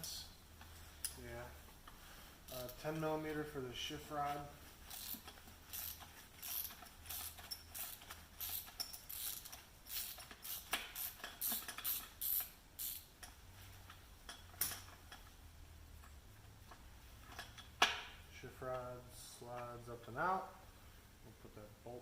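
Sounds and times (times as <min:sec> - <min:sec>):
ratchet wrench clicking: 0:04.9 - 0:13.4.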